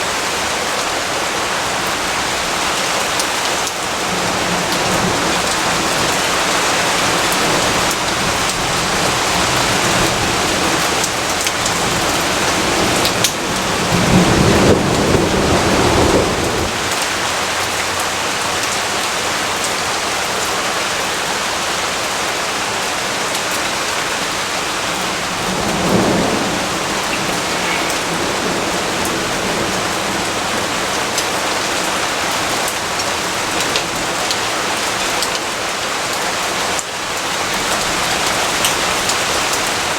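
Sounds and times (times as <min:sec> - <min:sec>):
steady rain: 0:00.0 - 0:39.9
thunder rumbling: 0:03.9 - 0:17.8, 0:24.0 - 0:33.6.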